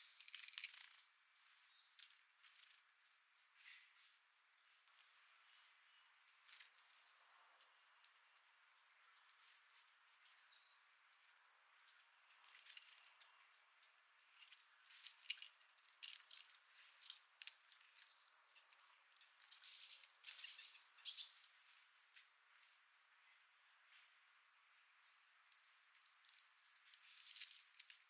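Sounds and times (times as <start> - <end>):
small birds chirping: 0.0 - 28.0
sharp bird ticks: 19.0 - 21.4.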